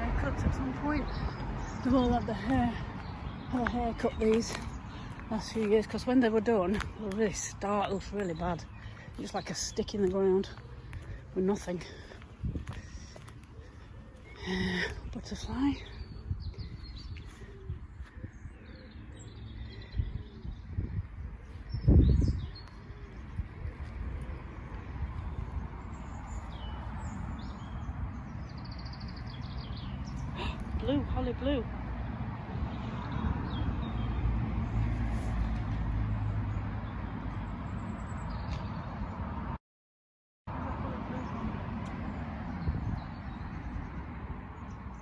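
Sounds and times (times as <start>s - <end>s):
road traffic rumble: 0.0s - 39.6s, 40.5s - 45.0s
songbirds chirping: 0.0s - 39.6s, 40.5s - 45.0s
low microphone rumble: 16.0s - 33.9s.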